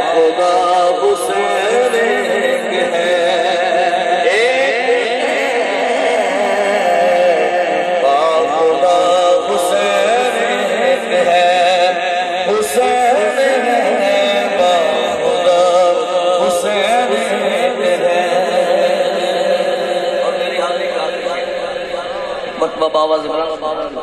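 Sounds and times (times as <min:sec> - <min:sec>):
man singing wordless melisma: 0:00.0 - 0:24.0.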